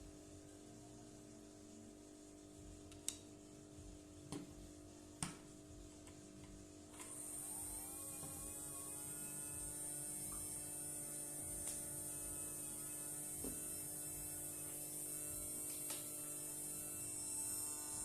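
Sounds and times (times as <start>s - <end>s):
small electric motor humming: 7.0s - 18.0s.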